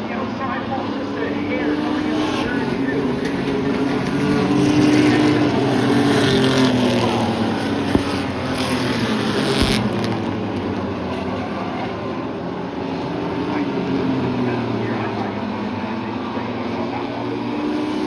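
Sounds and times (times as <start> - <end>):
race truck engines passing: 0.0 - 18.0
sharp crack: 5.3 - 10.7.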